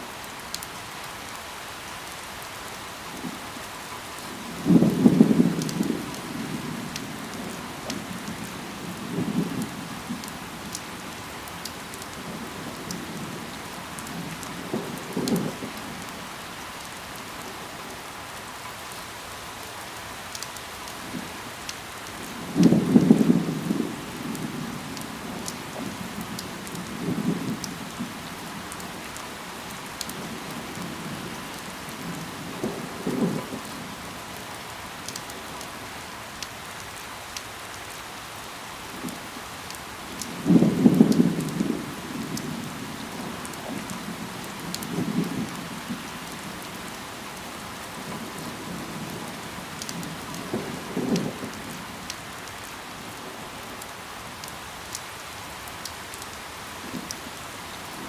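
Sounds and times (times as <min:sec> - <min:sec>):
rain falling on leaves: 0:00.0 - 0:58.0
water drip ticks: 0:00.2 - 0:01.4, 0:04.8 - 0:06.3, 0:09.6 - 0:12.2, 0:19.6 - 0:21.0, 0:24.2 - 0:27.0, 0:27.6 - 0:32.1, 0:34.4 - 0:35.8, 0:39.0 - 0:46.4, 0:47.4 - 0:52.8.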